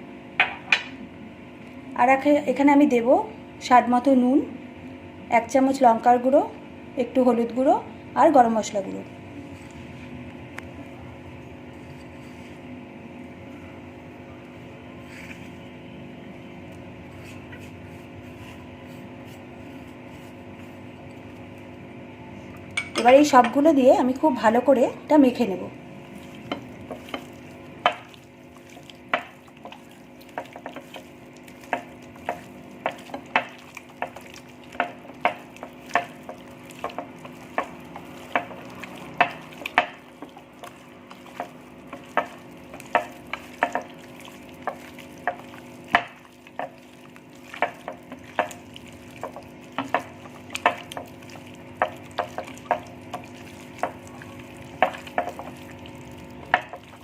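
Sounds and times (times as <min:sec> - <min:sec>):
chicken mixed in wet marinade: 0:12.3 - 0:22.9, 0:24.5 - 0:57.0.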